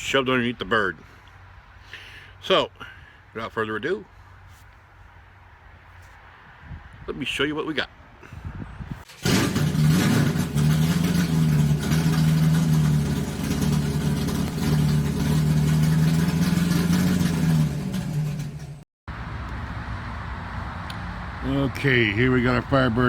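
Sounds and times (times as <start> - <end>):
engine humming steadily: 9.1 - 23.0.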